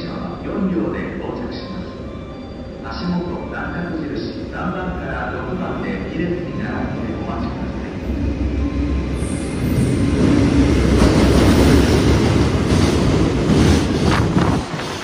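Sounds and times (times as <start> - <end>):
train rolling rumble: 3.5 - 15.0.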